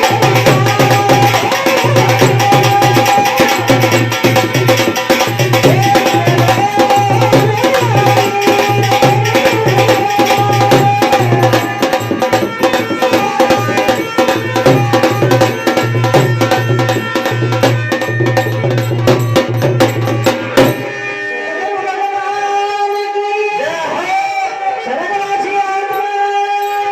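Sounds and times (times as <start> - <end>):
hand drum and percussion strikes: 0.0 - 21.0.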